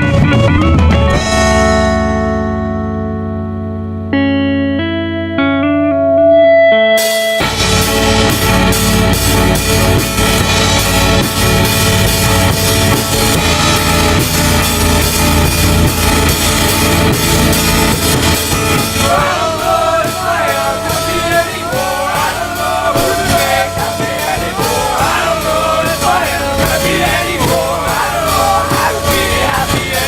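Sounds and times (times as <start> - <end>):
rock band music: 0.0 - 30.0
person singing: 19.0 - 30.0.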